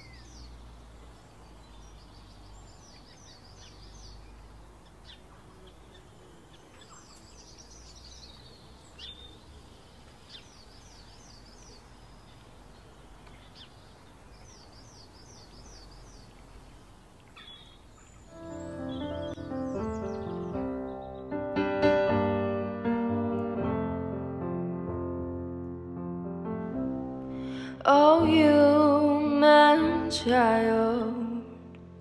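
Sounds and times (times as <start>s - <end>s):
birds singing: 0.0s - 21.5s.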